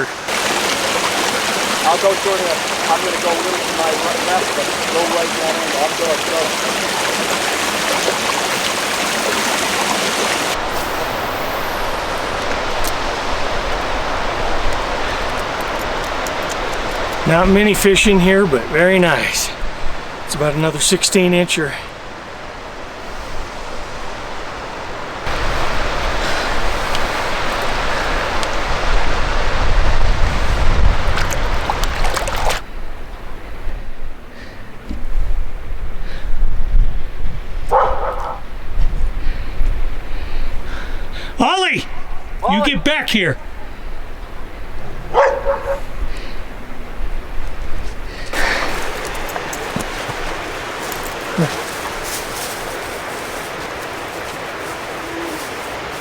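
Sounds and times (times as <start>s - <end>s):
stream water rushing: 0.0s - 32.7s, 39.9s - 56.0s
wind buffeting microphone: 22.4s - 41.3s.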